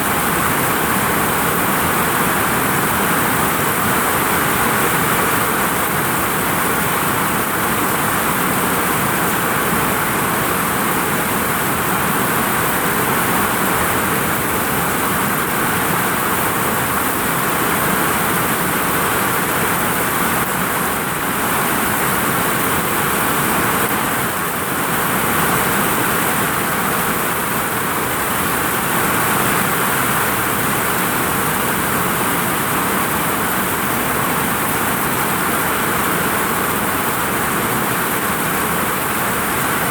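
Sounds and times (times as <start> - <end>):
heavy rain on a vinyl roof: 0.0 - 39.9.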